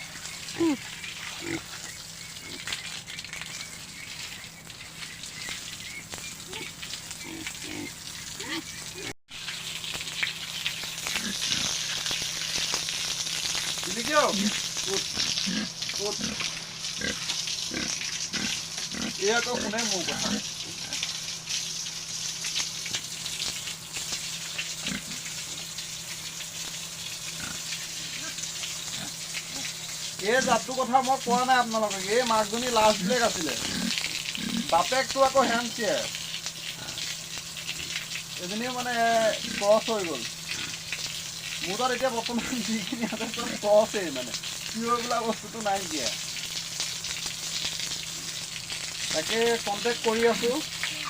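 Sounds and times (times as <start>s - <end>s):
pigs grunting: 0.0s - 3.2s, 6.4s - 9.1s, 11.0s - 12.0s, 14.2s - 21.1s, 24.8s - 25.6s, 27.3s - 30.7s, 32.5s - 38.1s, 39.1s - 40.9s, 42.3s - 44.3s
crackling rustling noise: 9.4s - 15.0s
steady hiss: 21.2s - 51.0s.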